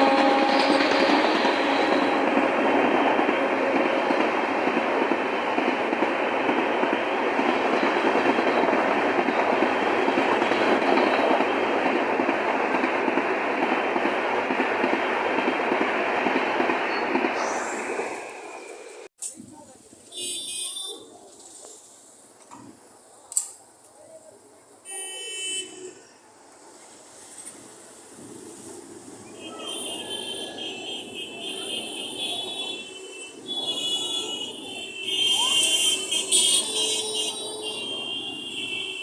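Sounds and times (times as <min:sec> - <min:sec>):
train rumbling on rails: 0:00.0 - 0:19.7, 0:26.3 - 0:39.0.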